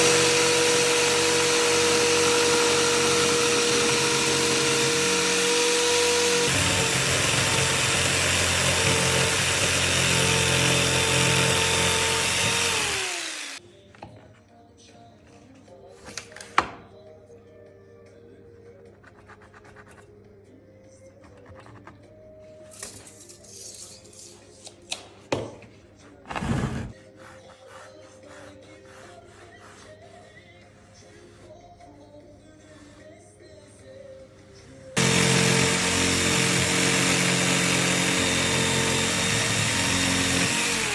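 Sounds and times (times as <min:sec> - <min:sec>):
noisy rasp: 0:00.0 - 0:13.6, 0:26.3 - 0:31.5, 0:35.0 - 0:40.9
power tool whining: 0:00.0 - 0:13.6, 0:35.0 - 0:40.9
faint background music: 0:13.6 - 0:35.0.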